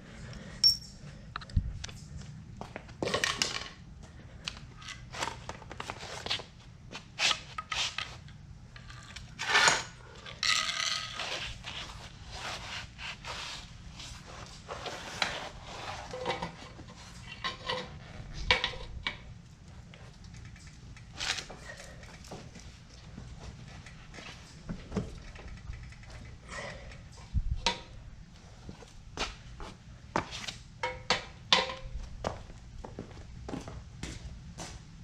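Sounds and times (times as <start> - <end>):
metal tools clinking and scraping: 0.6 - 1.0.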